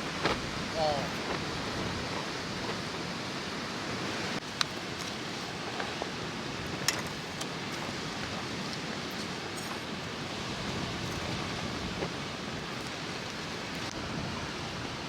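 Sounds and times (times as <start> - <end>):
outdoor background rush: 0.0 - 15.0.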